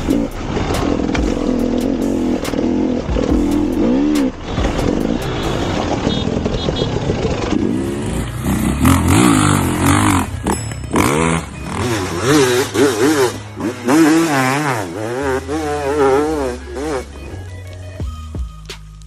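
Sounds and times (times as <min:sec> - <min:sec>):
another engine revving: 0:00.0 - 0:06.3, 0:07.4 - 0:17.4
off-road vehicle engine revving: 0:00.0 - 0:17.5.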